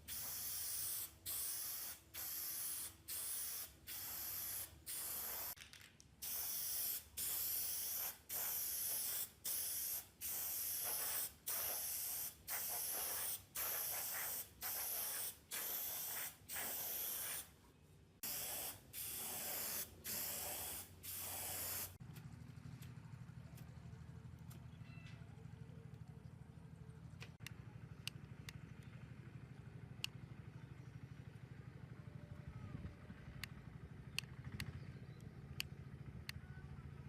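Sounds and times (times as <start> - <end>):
aerosol spray can hissing: 0.0 - 5.6, 6.2 - 17.5, 18.2 - 22.0.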